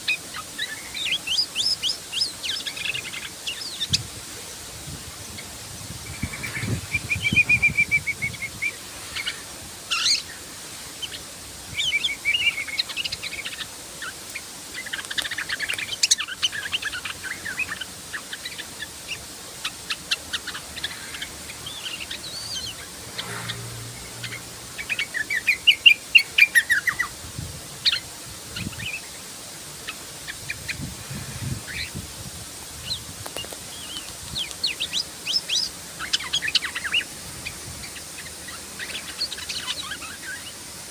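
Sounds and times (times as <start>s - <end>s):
bird chirping and warbling: 5.3s - 10.4s, 14.8s - 27.1s, 29.8s - 32.0s.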